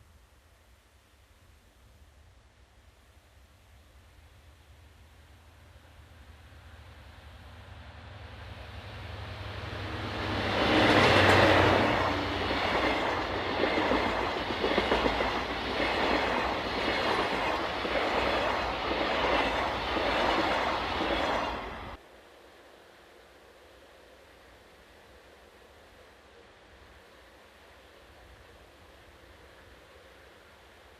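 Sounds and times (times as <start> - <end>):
diesel locomotive engine rumble: 5.6 - 22.0.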